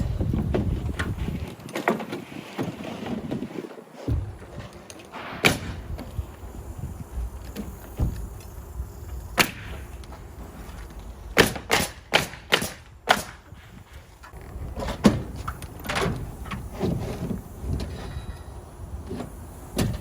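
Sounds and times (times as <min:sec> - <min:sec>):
nails hammered into roof sheeting: 0:11.4 - 0:13.6.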